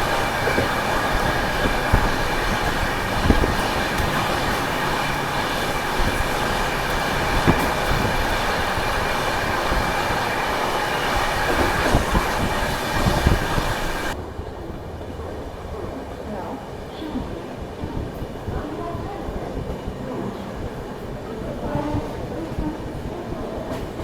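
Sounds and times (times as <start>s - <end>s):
wheels clattering over rail joints: 0.0s - 14.2s
train rolling on track: 0.0s - 24.0s.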